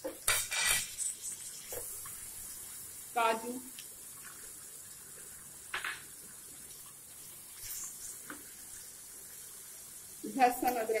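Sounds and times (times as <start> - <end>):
onions sizzling in a frying pan: 0.0 - 11.0.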